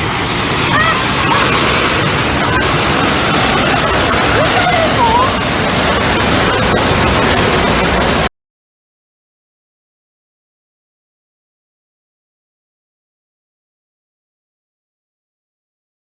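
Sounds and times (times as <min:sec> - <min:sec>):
rushing torrent of water: 0:00.0 - 0:08.3
distant shouting: 0:00.6 - 0:05.5.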